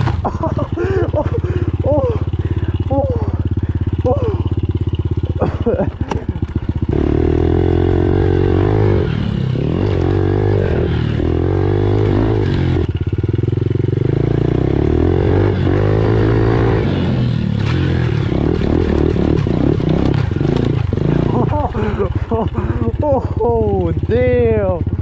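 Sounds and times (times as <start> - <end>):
pit bike engine revving: 0.0 - 25.0.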